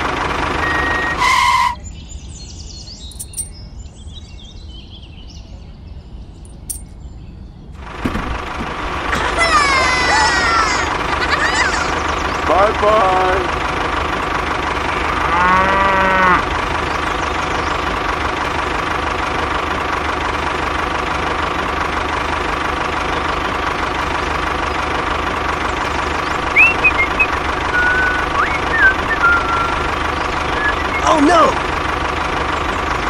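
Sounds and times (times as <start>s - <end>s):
tractor engine running: 0.0s - 3.6s, 7.8s - 33.0s
cow mooing: 15.0s - 16.5s
short high chirps: 26.6s - 29.9s.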